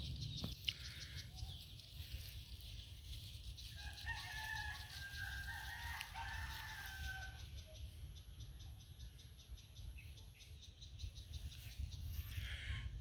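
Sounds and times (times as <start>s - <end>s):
rooster crowing: 3.8s - 7.4s.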